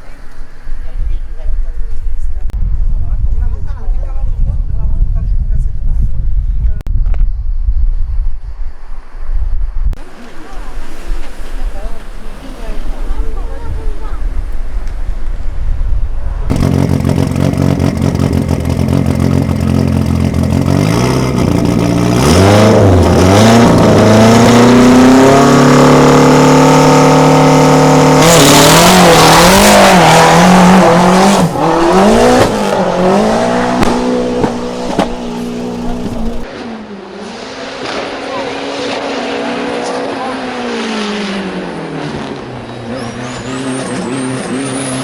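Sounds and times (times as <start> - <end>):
race car engine accelerating: 16.5 - 45.0.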